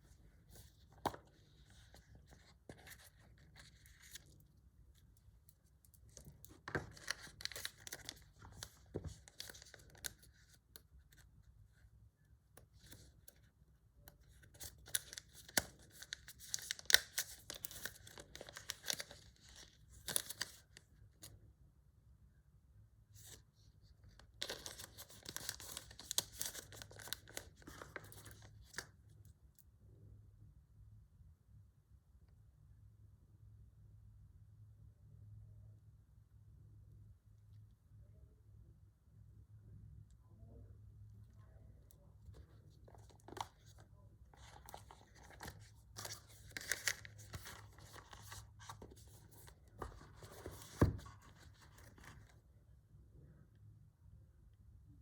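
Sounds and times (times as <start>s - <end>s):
packaging crinkling and tearing: 6.6s - 10.5s, 14.5s - 20.6s, 24.4s - 28.8s, 44.4s - 52.3s
packaging being torn and crinkled: 14.6s - 20.6s, 44.4s - 49.4s.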